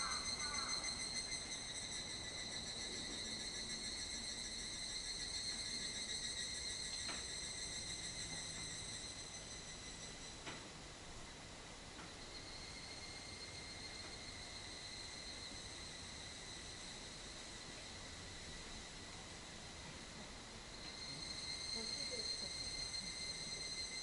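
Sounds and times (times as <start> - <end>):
insect trilling: 0.0 - 10.3, 20.8 - 24.0.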